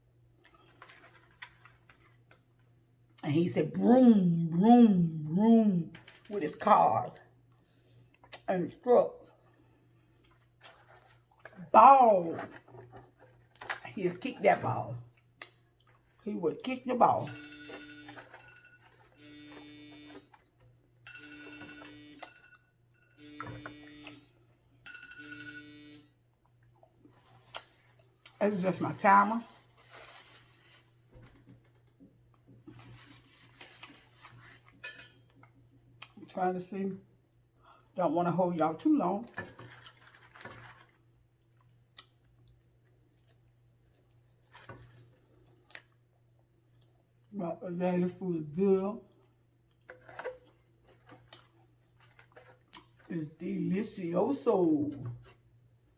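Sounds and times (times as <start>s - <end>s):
low steady hum: 0.0s - 55.9s
buzzy timer alarm: 17.3s - 20.3s, 21.0s - 24.3s, 24.9s - 26.1s
faint chewing: 49.1s - 53.1s.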